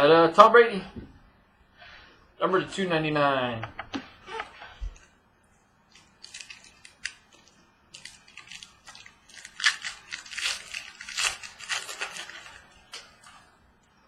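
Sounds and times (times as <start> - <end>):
trading cards crinkling and clicking: 5.9 - 13.4.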